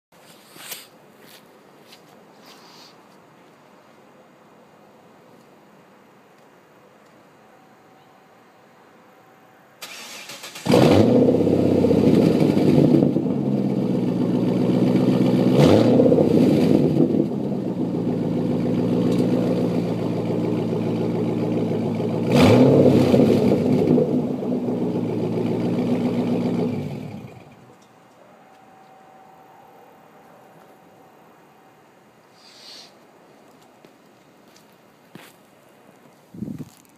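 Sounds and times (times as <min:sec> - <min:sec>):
car engine idling and revving: 0:10.0 - 0:27.8.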